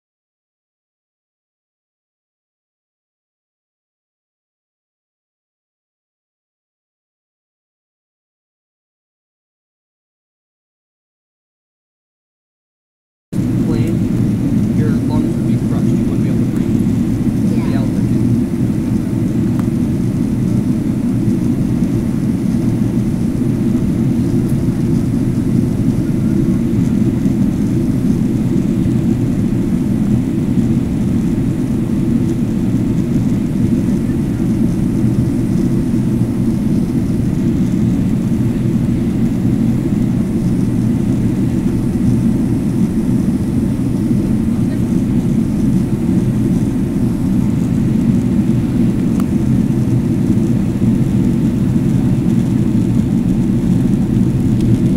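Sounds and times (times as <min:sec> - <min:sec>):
airplane cabin engine rumble: 0:13.4 - 0:54.9.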